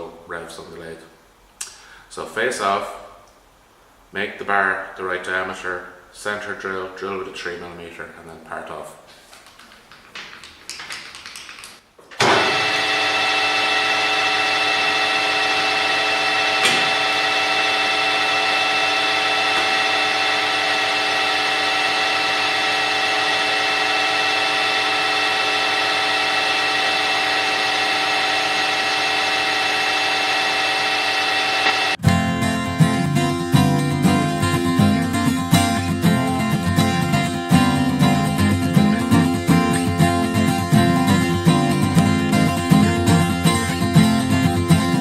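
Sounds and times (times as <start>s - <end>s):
lathe whining: 12.2s - 32.0s
guitar music: 32.0s - 45.0s.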